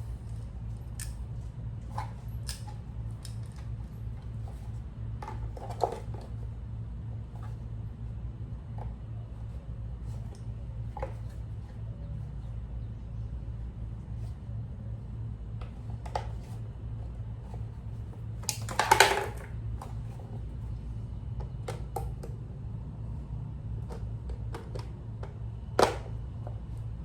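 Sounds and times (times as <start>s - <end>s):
steady low hum: 0.0s - 27.0s
tools and parts clicking: 0.3s - 1.2s, 2.0s - 3.7s, 18.4s - 19.5s.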